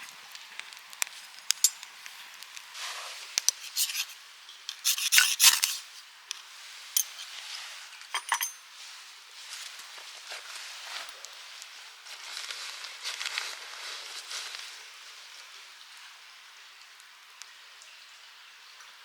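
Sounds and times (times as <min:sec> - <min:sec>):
scraping and rubbing: 0:02.8 - 0:06.0.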